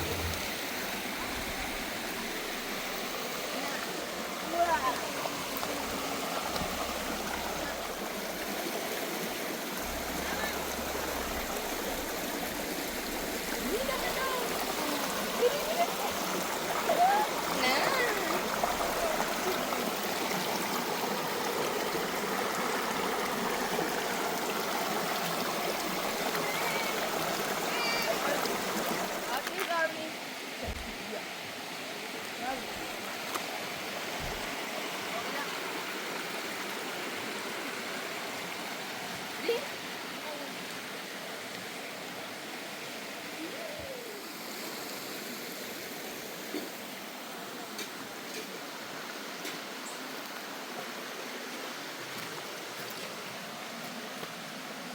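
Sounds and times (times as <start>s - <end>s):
faint rising and falling tone: 0.0s - 0.6s
steady rushing noise: 0.0s - 0.8s
water rushing: 0.0s - 54.9s.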